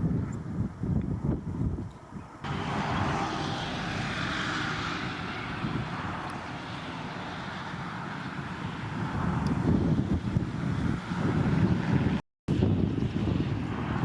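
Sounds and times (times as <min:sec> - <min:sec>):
wind buffeting microphone: 0:00.0 - 0:14.0
aircraft passing overhead: 0:02.4 - 0:14.0.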